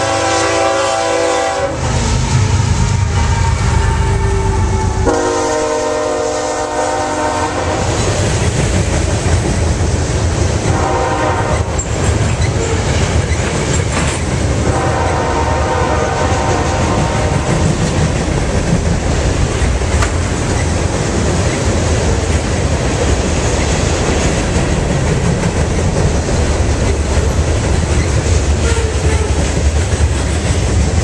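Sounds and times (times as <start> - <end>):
locomotive horn blasts: 0.0 - 8.0, 10.7 - 11.8, 14.6 - 17.6, 28.6 - 29.4
freight train cars rumbling and clacking: 0.0 - 31.0.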